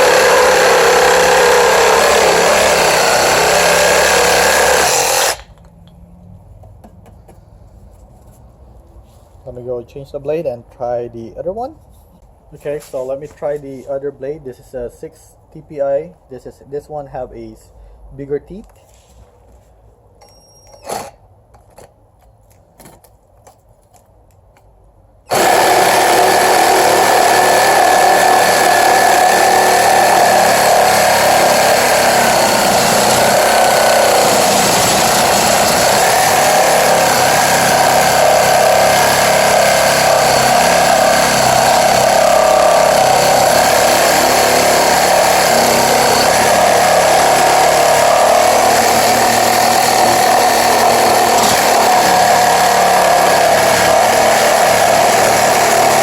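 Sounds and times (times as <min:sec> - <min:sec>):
reciprocating saw cutting wood: 0:00.0 - 0:05.6, 0:25.3 - 0:56.0.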